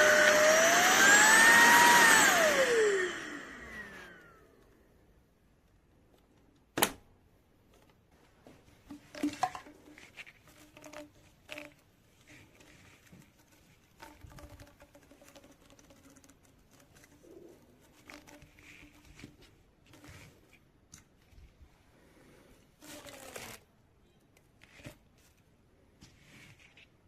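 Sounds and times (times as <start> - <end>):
objects being handled: 7.6 - 21.9, 22.6 - 27.0.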